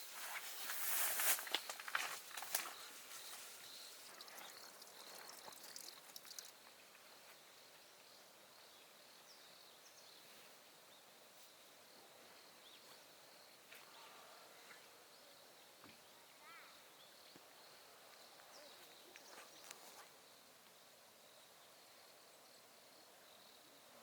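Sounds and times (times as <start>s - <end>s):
light clicks and rustles: 0.7s - 6.5s.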